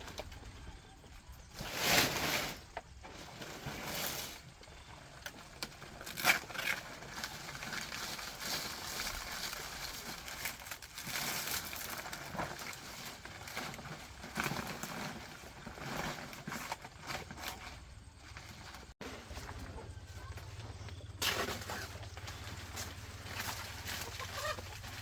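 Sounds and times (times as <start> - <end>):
dry vegetation rustling and crackling: 0.0 - 25.0.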